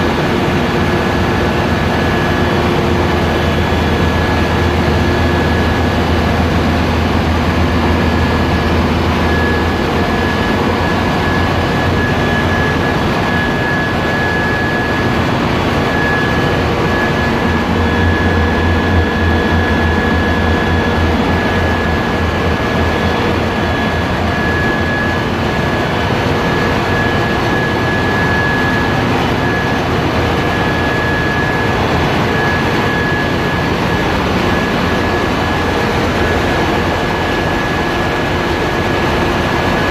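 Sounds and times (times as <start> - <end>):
diesel engines droning: 0.0 - 39.9
high-pitched whine: 0.0 - 39.9.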